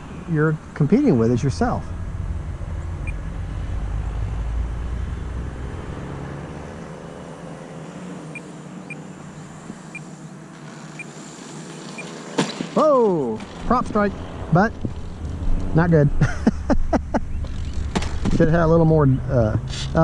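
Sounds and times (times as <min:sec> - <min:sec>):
model airplane motor rushing: 0:05.7 - 0:15.8.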